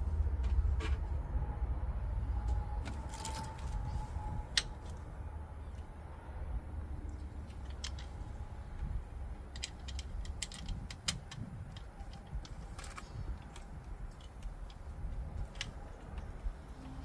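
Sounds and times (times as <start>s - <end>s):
metallic clicks and clinks: 7.4s - 8.4s, 9.3s - 17.0s.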